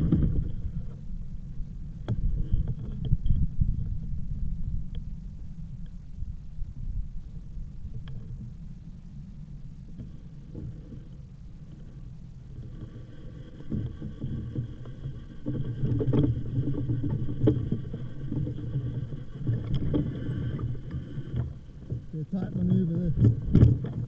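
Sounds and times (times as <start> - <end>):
wind buffeting microphone: 0.0 - 8.8, 12.5 - 24.0
bicycle tyre rumble: 0.0 - 24.0
faint steady whine: 0.0 - 24.0.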